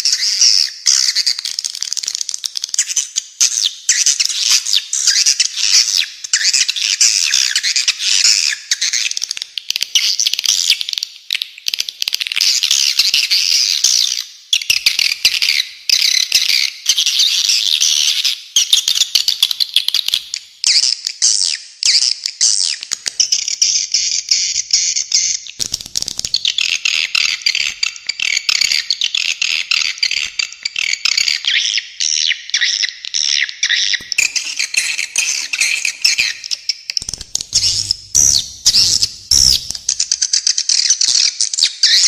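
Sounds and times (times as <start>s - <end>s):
bird calls: 25.4s - 41.2s
swiftlet twittering: 34.0s - 40.3s.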